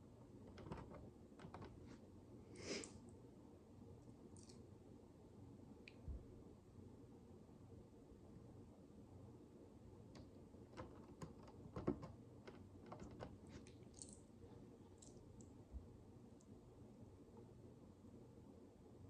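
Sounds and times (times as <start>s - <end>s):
plastic building bricks clicking: 0.5s - 1.8s, 10.7s - 13.4s.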